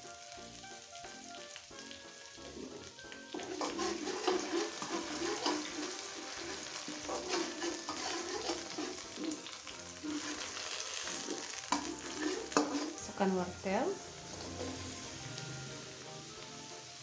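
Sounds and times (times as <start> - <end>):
garlic paste sizzling in oil: 0.0 - 17.0
metal spatula scraping a wok: 2.4 - 13.3, 14.2 - 15.2.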